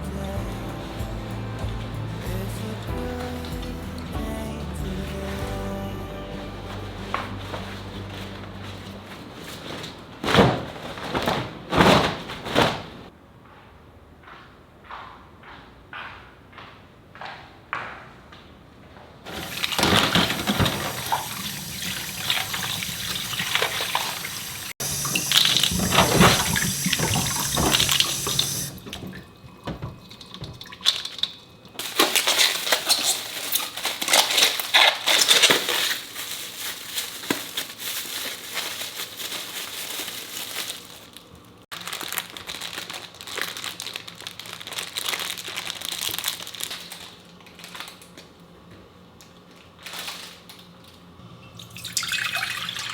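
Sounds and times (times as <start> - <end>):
tap water running into sink: 19.3 - 31.4, 51.6 - 52.9.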